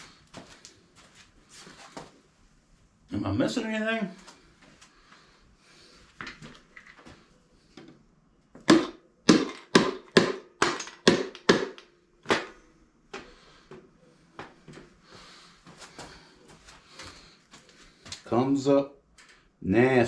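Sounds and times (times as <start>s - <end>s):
sharp knocks: 8.6s - 12.6s.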